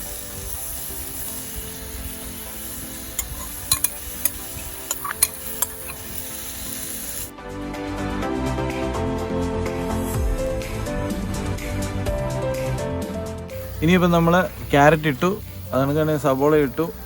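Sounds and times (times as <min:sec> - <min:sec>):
vegetables sizzling in hot oil: 0:00.0 - 0:07.3, 0:13.5 - 0:17.0
background music: 0:00.0 - 0:17.0
spatula clicking against pan: 0:03.2 - 0:06.1.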